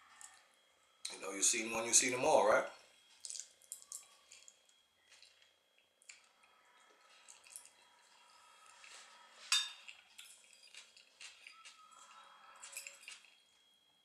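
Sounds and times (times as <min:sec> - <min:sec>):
chewing with wet mouth clicks: 0:03.2 - 0:09.0, 0:09.8 - 0:13.4.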